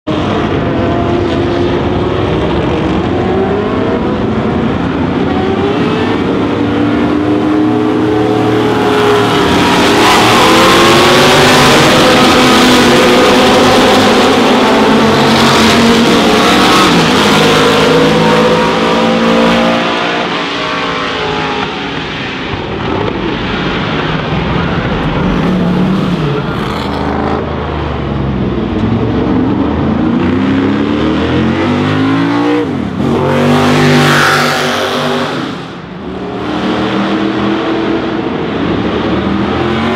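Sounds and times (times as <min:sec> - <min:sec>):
racing car engines passing: 0:00.1 - 0:39.9.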